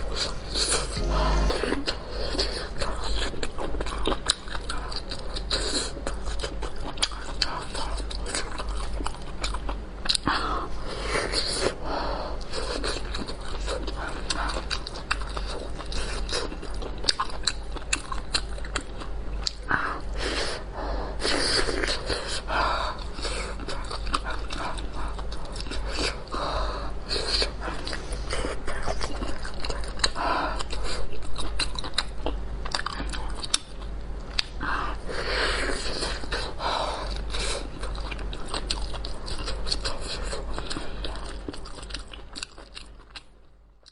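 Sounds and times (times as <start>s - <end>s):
person chewing food: 0.0s - 11.8s, 12.4s - 43.9s
low hum: 0.2s - 3.1s.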